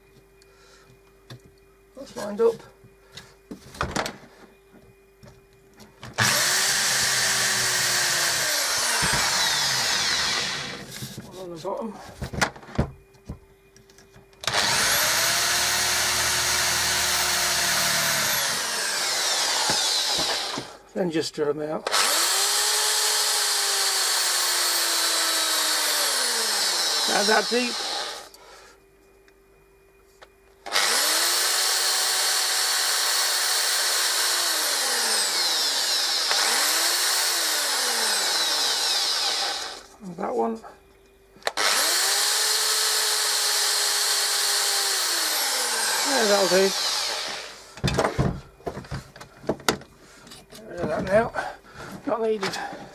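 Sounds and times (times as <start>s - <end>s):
electric drill drilling wood: 6.2s - 11.0s, 14.4s - 20.8s, 21.9s - 28.3s, 30.7s - 39.9s, 41.5s - 48.4s.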